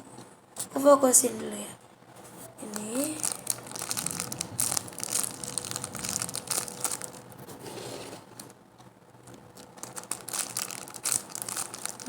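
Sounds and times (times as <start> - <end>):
squishy toy crinkling and rustling: 2.6 - 7.5, 9.3 - 12.0.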